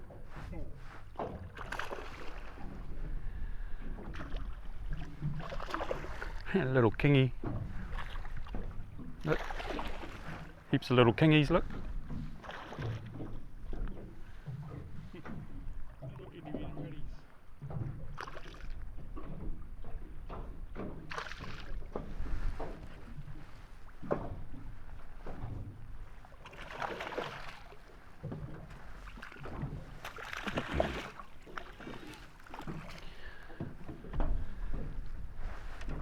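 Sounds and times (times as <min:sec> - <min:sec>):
rushes of water or wind: 0:00.0 - 0:36.0
water lapping against boat hull: 0:00.0 - 0:36.0
knocks and bumps aboard: 0:06.4 - 0:26.6, 0:27.5 - 0:36.0.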